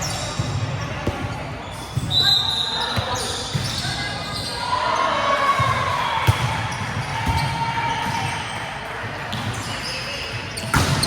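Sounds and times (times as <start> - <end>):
shoe squeaks: 0.0 - 0.9, 1.6 - 4.8
echoing gym hall noise: 0.0 - 11.0.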